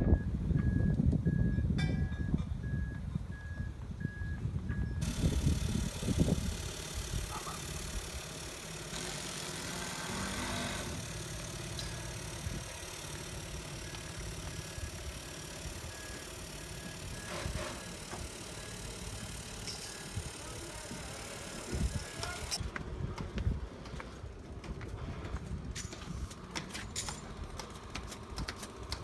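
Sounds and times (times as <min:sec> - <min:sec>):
engine idling hum: 0:04.9 - 0:22.6.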